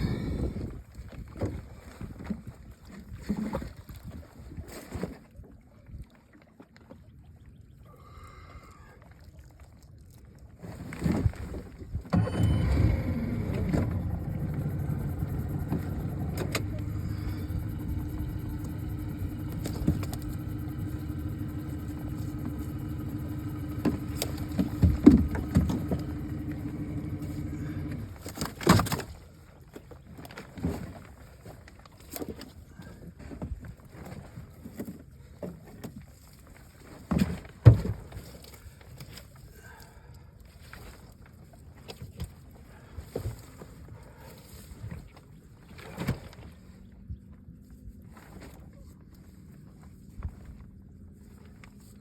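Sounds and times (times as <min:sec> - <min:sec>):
boat motor idling: 0:12.2 - 0:29.0.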